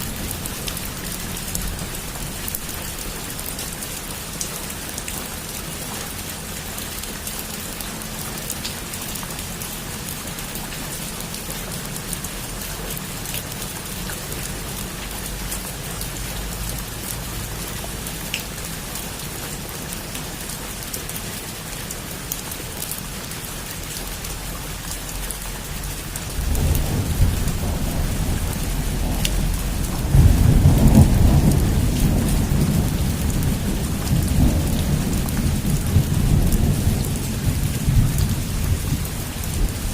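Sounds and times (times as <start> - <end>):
heavy rain pattering: 0.0 - 39.9
thunder rumbling: 26.2 - 39.9.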